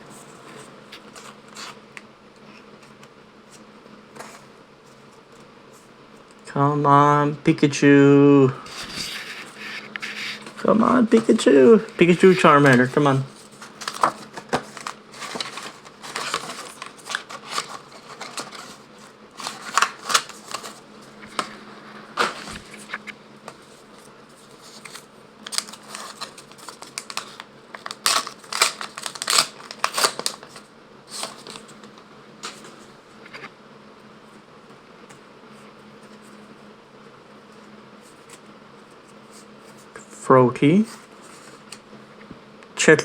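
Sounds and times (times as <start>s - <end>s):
faint steady hum: 0.0s - 43.0s
cards sliding and shuffling: 0.2s - 5.9s, 8.6s - 33.5s
card pack wrapper crinkling and tearing: 1.0s - 1.8s, 8.7s - 21.6s, 24.6s - 32.7s.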